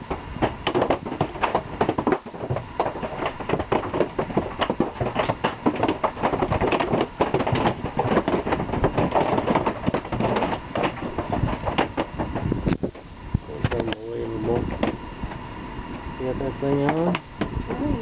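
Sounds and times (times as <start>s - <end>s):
hail clattering on vehicle roof: 0.4s - 13.1s, 13.7s - 15.0s.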